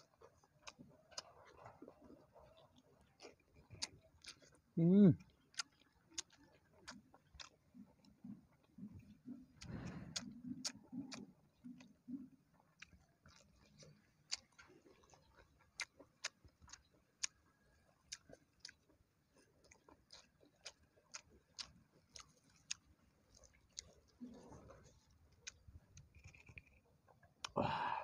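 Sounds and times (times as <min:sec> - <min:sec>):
person chewing food: 0:00.0 - 0:28.0
mouth smacking clicks: 0:09.0 - 0:14.7, 0:25.4 - 0:26.8.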